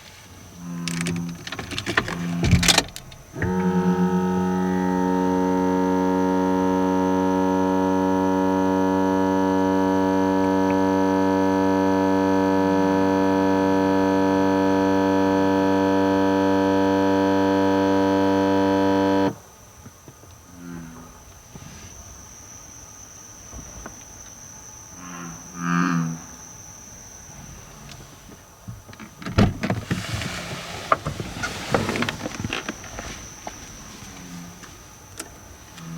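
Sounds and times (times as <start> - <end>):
low croaking noise: 0.0 - 12.6, 19.4 - 35.9
loud low hum from car: 0.0 - 19.6.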